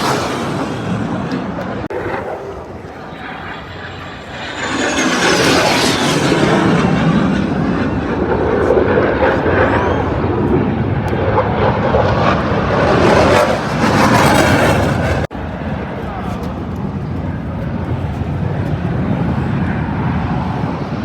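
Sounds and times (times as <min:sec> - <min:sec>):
high jet whine: 0:00.0 - 0:21.0
jet engine roar: 0:00.0 - 0:21.0.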